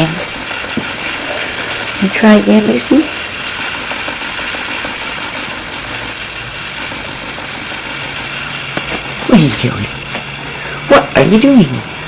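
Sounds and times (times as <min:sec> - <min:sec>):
mechanical hum and hiss: 0:00.0 - 0:12.0.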